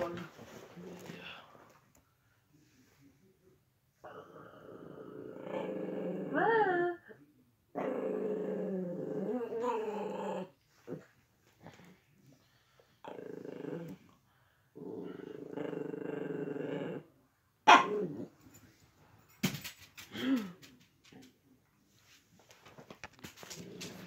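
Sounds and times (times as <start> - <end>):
dog growling: 4.0 - 7.0, 7.7 - 12.0, 12.9 - 14.2, 14.8 - 17.1, 17.7 - 18.4
dog barking: 17.6 - 18.1.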